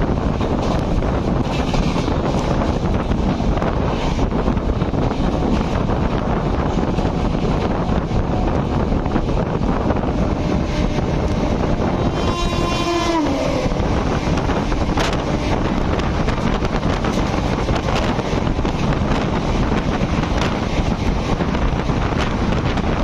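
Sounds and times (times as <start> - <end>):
moving train rumble: 0.0 - 23.0
wind rushing: 0.0 - 23.0
train horn: 10.0 - 16.1.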